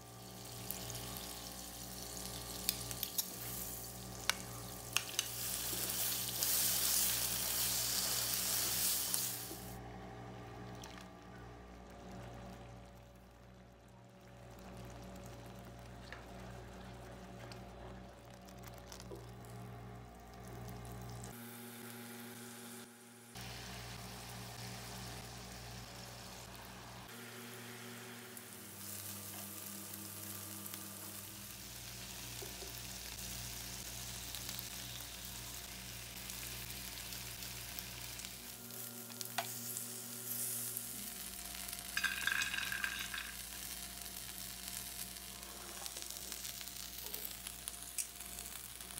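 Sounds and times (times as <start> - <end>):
meat sizzling in a grill pan: 0.0 - 9.8, 28.4 - 48.9.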